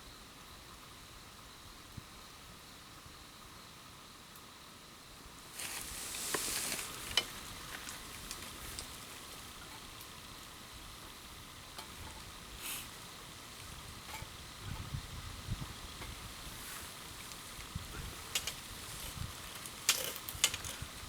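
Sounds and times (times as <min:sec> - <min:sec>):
sizzling over campfire: 0:00.0 - 0:21.0
fire pops and crackles: 0:05.4 - 0:21.0.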